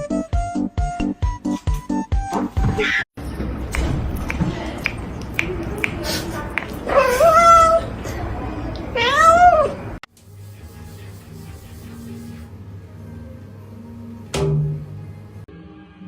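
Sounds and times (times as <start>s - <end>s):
cat meowing loudly: 9.0s - 9.8s.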